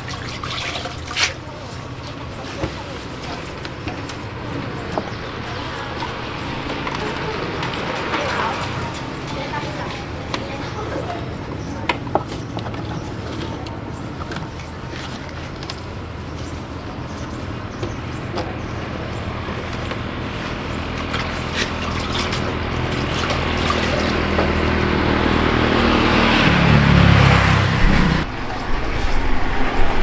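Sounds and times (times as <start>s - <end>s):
motor humming: 22.5s - 30.0s.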